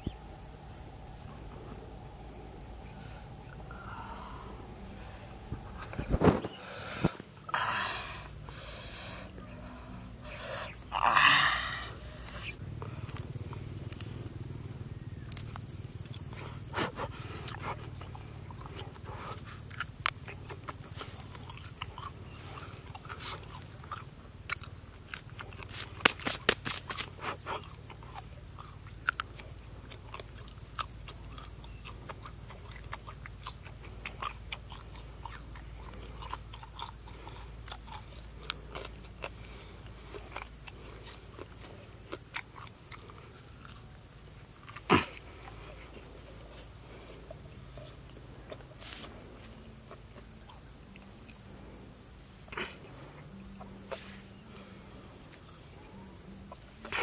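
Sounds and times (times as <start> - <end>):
chewing: 8.3 - 57.0
insect being pulled apart: 25.7 - 27.1.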